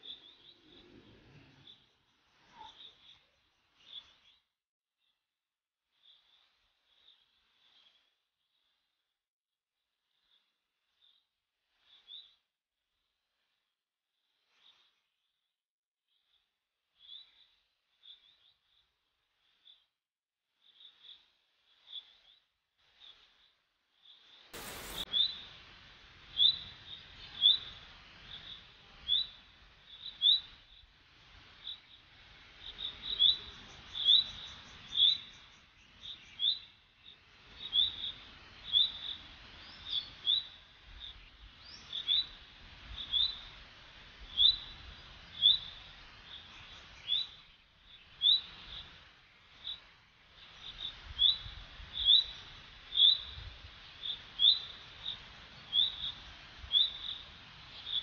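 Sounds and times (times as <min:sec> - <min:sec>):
small bird chirping: 0:00.0 - 0:05.2, 0:05.9 - 0:09.0, 0:10.1 - 0:12.4, 0:16.1 - 0:19.9, 0:20.6 - 0:25.5, 0:26.3 - 0:31.0, 0:31.6 - 0:43.5, 0:44.3 - 0:53.4, 0:54.0 - 0:58.0.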